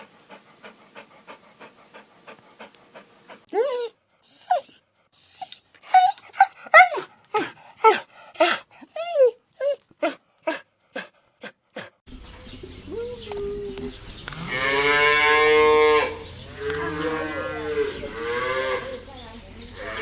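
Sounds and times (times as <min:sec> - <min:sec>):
dog panting: 0:00.0 - 0:09.1
dog yelping and whining: 0:03.5 - 0:07.1, 0:08.9 - 0:10.2.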